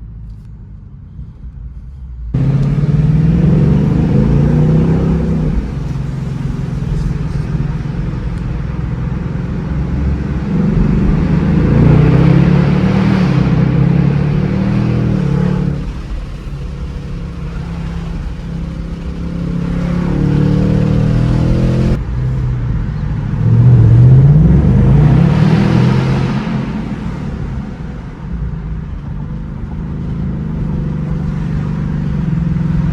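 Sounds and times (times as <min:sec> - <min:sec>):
car engine accelerating: 0:01.1 - 0:32.9.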